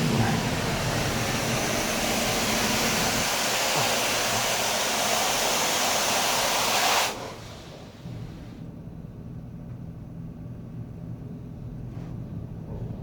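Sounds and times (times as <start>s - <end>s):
low hum: 0.0s - 6.6s
water jets spraying on van: 0.0s - 8.5s.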